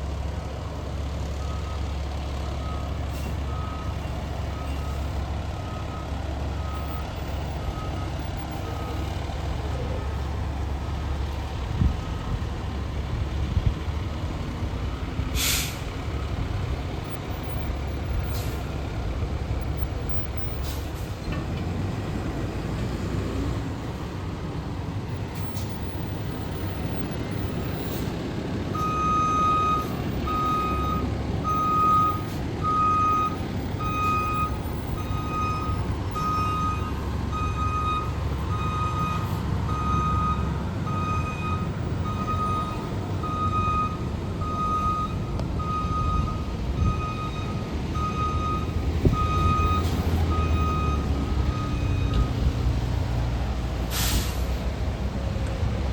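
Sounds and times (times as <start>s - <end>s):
diesel engine running slowly: 0.0s - 55.9s
reversing beeper: 2.6s - 9.1s, 28.8s - 52.4s
air brake hiss: 15.3s - 15.9s, 53.9s - 54.6s.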